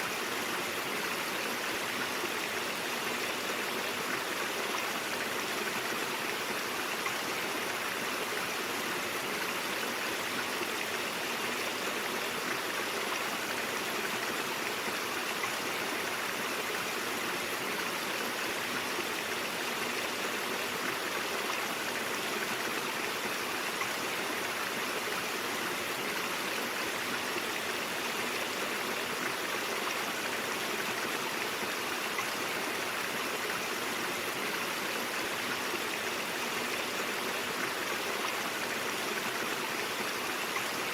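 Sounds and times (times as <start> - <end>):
stream water babbling over rocks: 0.0 - 40.9.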